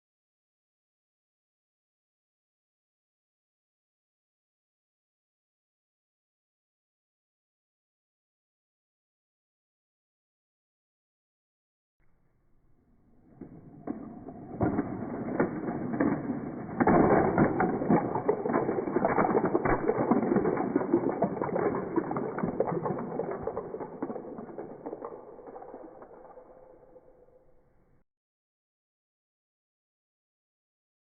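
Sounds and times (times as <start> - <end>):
plastic toy parts clattering: 13.7 - 27.0.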